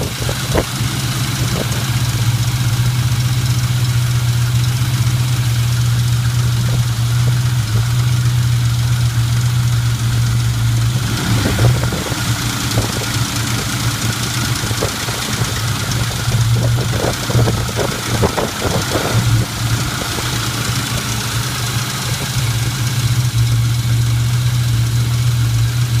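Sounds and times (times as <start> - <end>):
car engine idling: 0.0 - 26.0
loud engine tapping: 0.0 - 26.0.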